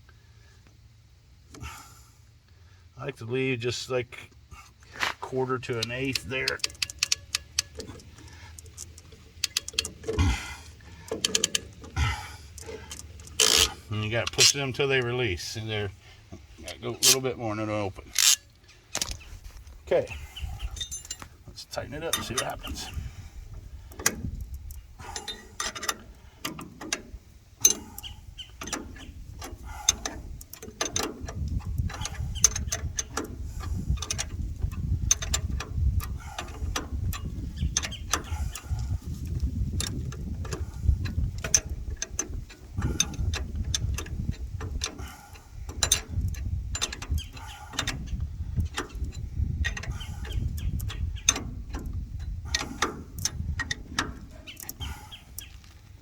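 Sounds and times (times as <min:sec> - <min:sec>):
ratchet wrench clicking: 0:05.8 - 0:10.2, 0:12.5 - 0:14.6, 0:18.1 - 0:18.4.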